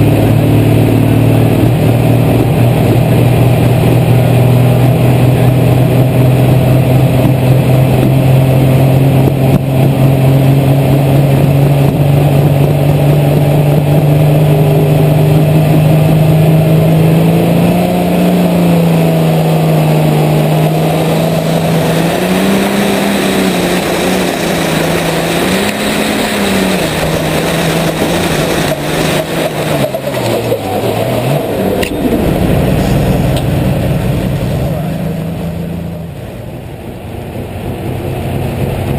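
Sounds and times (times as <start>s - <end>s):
tractor engine at full throttle: 0.0s - 38.9s.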